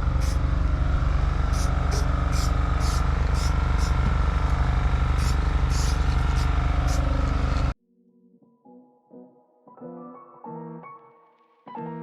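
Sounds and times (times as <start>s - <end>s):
small engine running: 0.0s - 7.8s
faint piano music: 7.9s - 12.0s.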